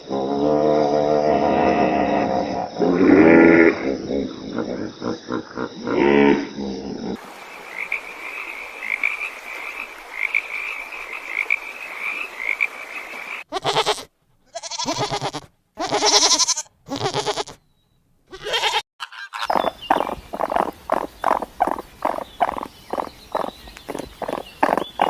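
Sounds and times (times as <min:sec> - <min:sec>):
frogs croaking: 0:00.0 - 0:13.6, 0:19.4 - 0:25.0
steady background hiss: 0:07.1 - 0:13.4
loud animal calls: 0:18.3 - 0:25.0.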